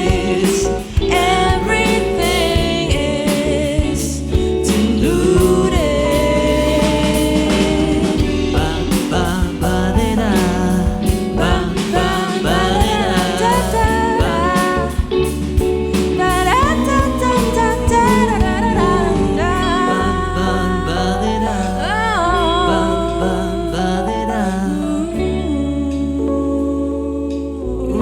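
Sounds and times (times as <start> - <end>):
drums with steady beat: 0.0 - 20.2
bass: 0.0 - 28.0
person singing: 0.0 - 28.0.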